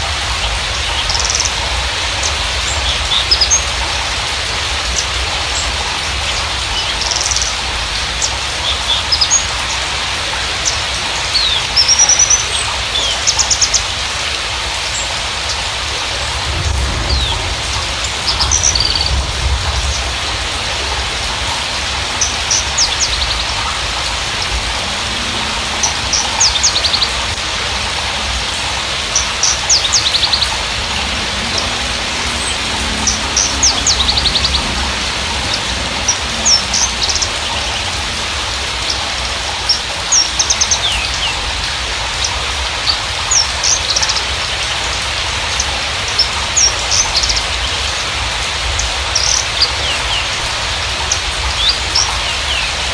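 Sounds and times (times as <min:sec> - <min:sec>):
steady rain-like hiss: 0:00.0 - 0:52.9
bird chirps and trills: 0:16.5 - 0:44.3.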